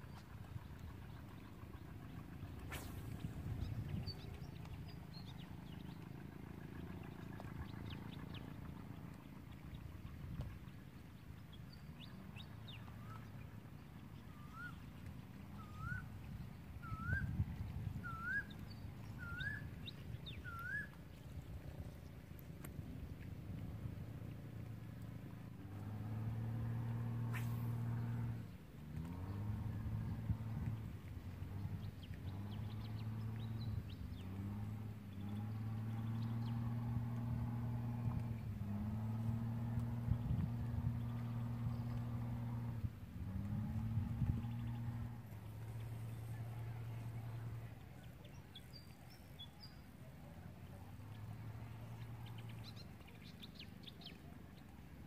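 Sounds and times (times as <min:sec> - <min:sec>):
low rumble: 0:00.0 - 0:11.1
engine droning: 0:00.0 - 0:55.0
bird whistling calls: 0:14.3 - 0:14.8, 0:15.6 - 0:16.2, 0:16.8 - 0:17.4, 0:18.0 - 0:21.0.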